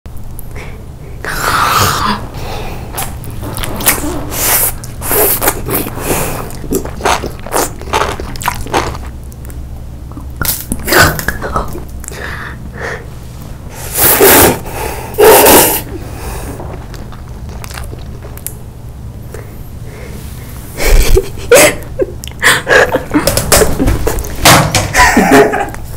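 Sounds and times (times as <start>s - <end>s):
chewing with wet mouth smacks: 4.6s - 10.8s, 16.6s - 18.6s.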